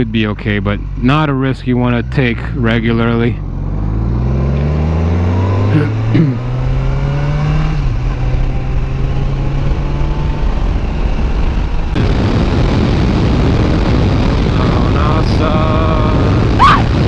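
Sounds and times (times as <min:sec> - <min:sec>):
motorcycle engine running: 0:00.0 - 0:17.0
road noise: 0:00.0 - 0:17.0
wind noise: 0:07.8 - 0:17.0.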